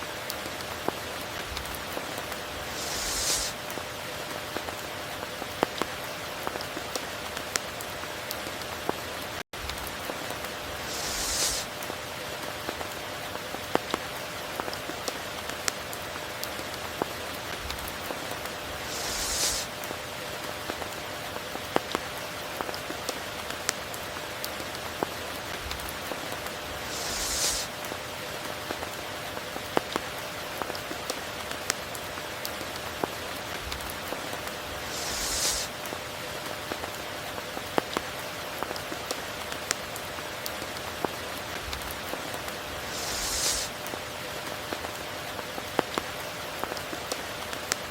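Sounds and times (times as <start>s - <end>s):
steady rain falling: 0.0s - 47.9s
brief high hissing: 2.6s - 3.6s, 10.8s - 11.7s, 18.7s - 19.7s, 26.8s - 27.7s, 34.8s - 35.8s, 42.8s - 43.8s.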